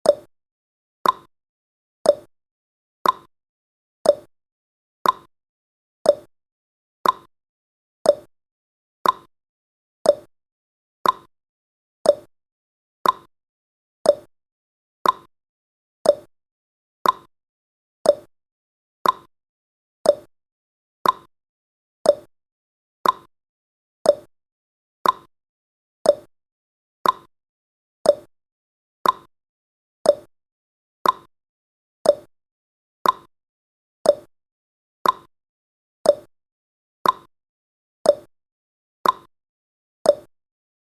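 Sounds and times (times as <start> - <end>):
clock ticking: 3.0 - 3.3, 5.0 - 5.3, 7.0 - 7.3, 9.0 - 9.3, 11.0 - 11.3, 13.0 - 13.3, 15.0 - 15.3, 16.1 - 16.3, 17.0 - 17.3, 18.1 - 18.3, 19.0 - 19.3, 20.1 - 20.3, 21.0 - 21.3, 22.1 - 22.3, 23.0 - 23.3, 24.1 - 24.3, 25.0 - 25.3, 26.1 - 26.3, 27.0 - 27.3, 29.0 - 29.3, 30.1 - 30.3, 31.0 - 31.3, 32.1 - 32.3, 33.0 - 33.3, 34.1 - 34.3, 35.0 - 35.3, 36.1 - 36.3, 37.0 - 37.3, 38.1 - 38.3, 39.0 - 39.3, 40.1 - 40.3.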